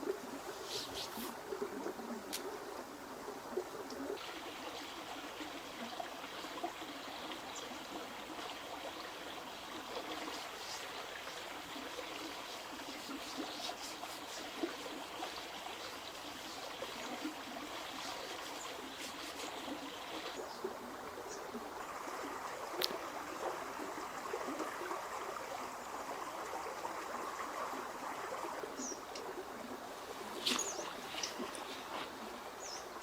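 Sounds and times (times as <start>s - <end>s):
water trickling: 0.0s - 33.0s
small drips and splashes: 3.5s - 20.4s, 22.6s - 23.6s, 30.0s - 33.0s.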